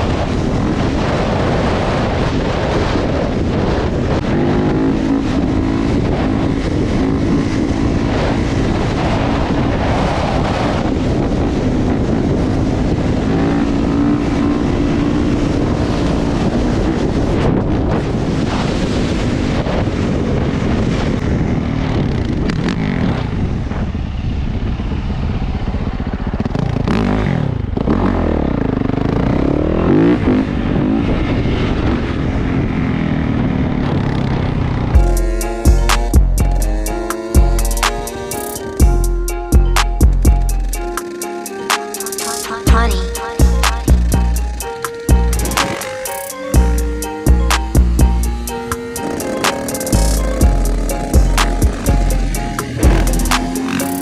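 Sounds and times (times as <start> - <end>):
wind and road noise: 0.0 - 54.0
motorcycle engine running: 4.0 - 9.7, 32.2 - 54.0.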